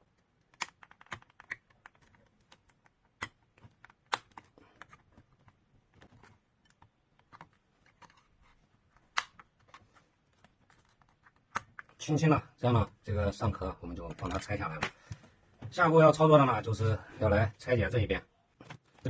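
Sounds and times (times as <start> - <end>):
plastic clips clicking and snapping: 0.2 - 8.2, 9.0 - 9.8.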